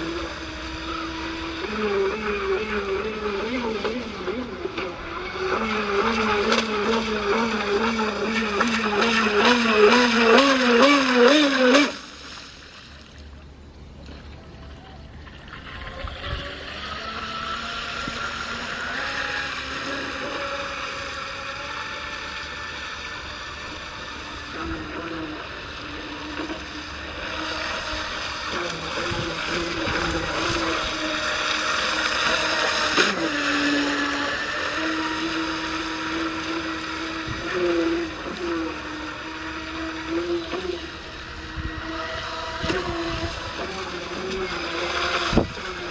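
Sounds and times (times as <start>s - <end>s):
electric motor whine: 0.0s - 12.3s, 15.6s - 45.9s.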